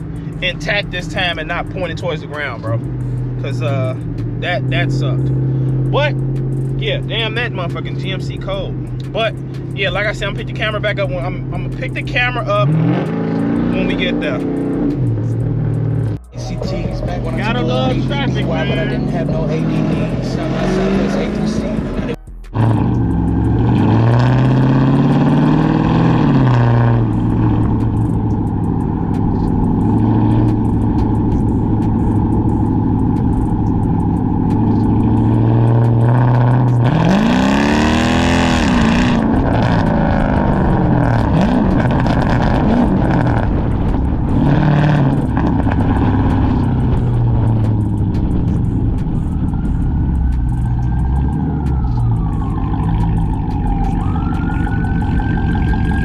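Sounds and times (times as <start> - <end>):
car exhaust revving: 0.0 - 56.0.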